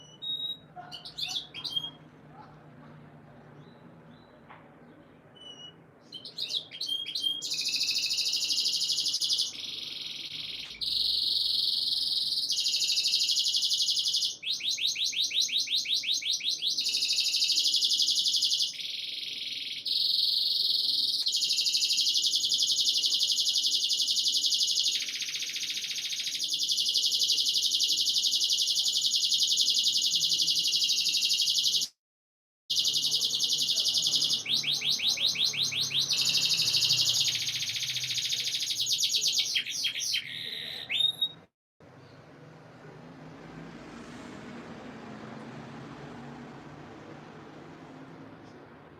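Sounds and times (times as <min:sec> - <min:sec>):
canary singing with trills: 0:00.0 - 0:02.5, 0:05.3 - 0:31.9, 0:32.7 - 0:41.5.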